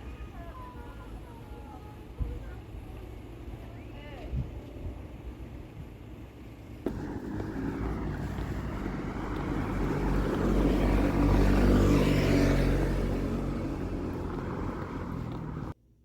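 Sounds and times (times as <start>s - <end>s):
vehicle passing by: 6.8s - 15.8s.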